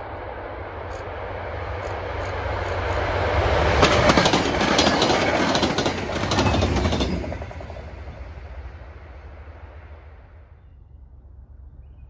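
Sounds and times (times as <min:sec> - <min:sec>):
train rolling noise: 0:00.0 - 0:11.7
diesel locomotive engine hum: 0:00.0 - 0:12.0
wheels clicking over rail joints: 0:03.8 - 0:07.9.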